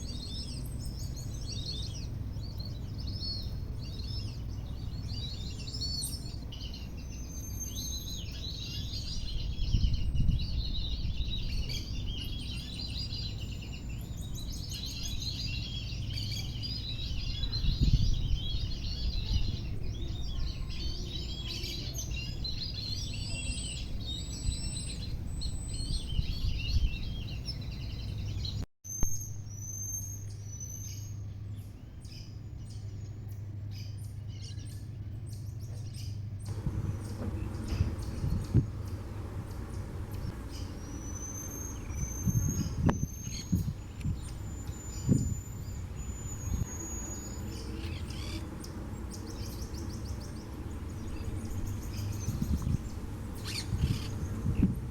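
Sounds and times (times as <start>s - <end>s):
birds chirping in chorus: 0.0s - 54.9s
low rumbles on microphone: 9.0s - 13.2s, 16.4s - 21.2s, 35.7s - 54.9s
steady low hum: 29.5s - 54.9s
whistled bird notes: 36.5s - 54.7s.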